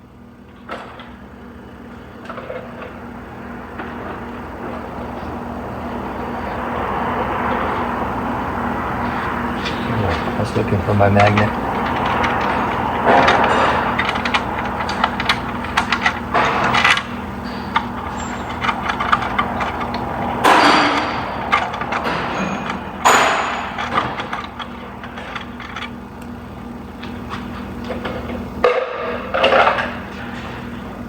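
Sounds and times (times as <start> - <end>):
steady low hum: 0.0 - 31.0
metal tools clinking and scraping: 9.0 - 26.4.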